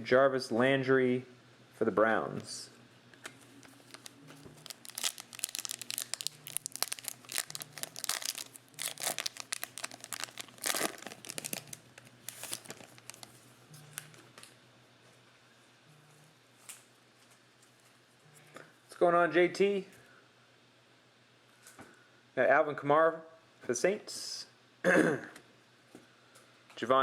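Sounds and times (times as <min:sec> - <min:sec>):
card pack wrappers tearing and crinkling: 0:03.6 - 0:14.2.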